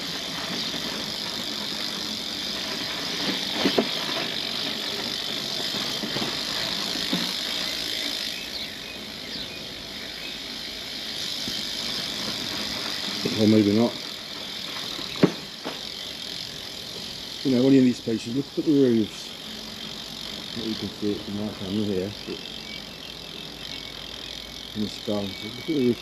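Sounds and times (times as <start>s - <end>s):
bicycle freewheel ticking: 0.0s - 26.0s.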